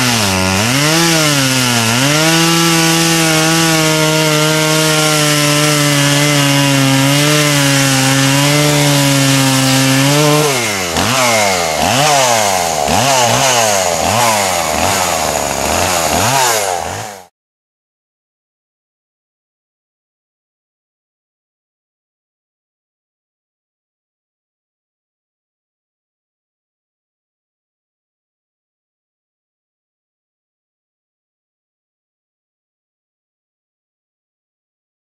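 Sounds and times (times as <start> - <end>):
chainsaw sawing wood: 0.0 - 17.3.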